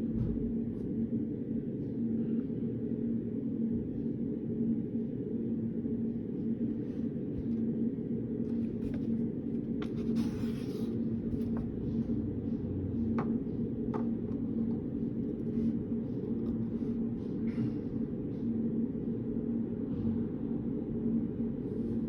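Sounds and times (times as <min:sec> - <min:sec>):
low background hum: 0:00.0 - 0:22.0
scratchy rustle: 0:09.8 - 0:11.6.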